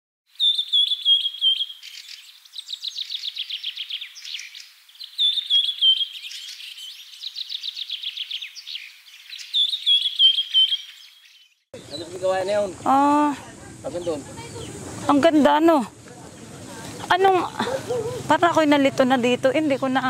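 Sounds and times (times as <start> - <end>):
songbird chirps and trill: 0.3 - 13.2.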